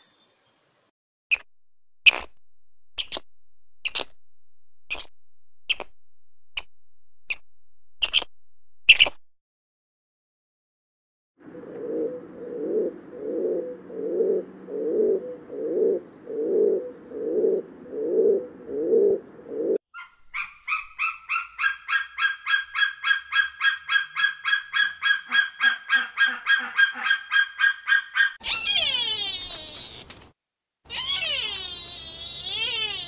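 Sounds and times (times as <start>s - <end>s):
pigeon cooing: 11.5s - 19.8s
bird of prey calling: 11.8s - 30.0s.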